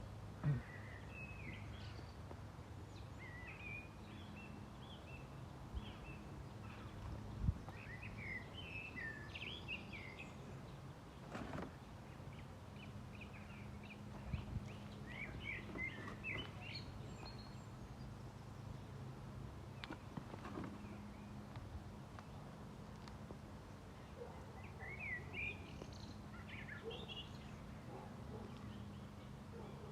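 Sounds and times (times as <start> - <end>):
birds chirping: 0.0 - 29.9.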